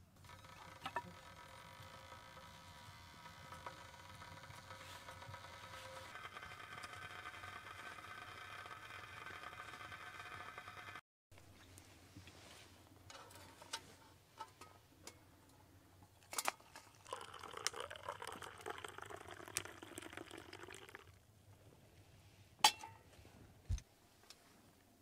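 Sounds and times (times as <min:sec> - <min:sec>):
liquid pouring into a cup: 0:16.6 - 0:21.2.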